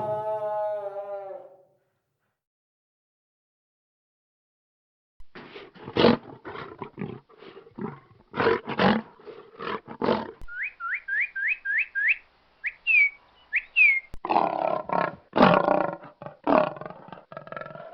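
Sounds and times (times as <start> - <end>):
lion roaring: 0.0 - 1.6, 5.6 - 10.4, 14.2 - 17.9
rising whistle-like chirps: 10.5 - 14.1.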